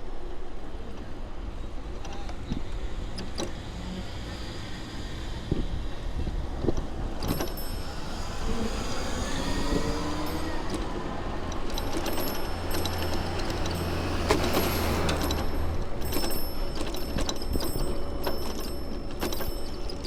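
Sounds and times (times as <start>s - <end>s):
low road rumble: 0.0s - 20.0s
motor vehicle passing: 3.0s - 18.8s
sharp ticks: 6.6s - 20.0s.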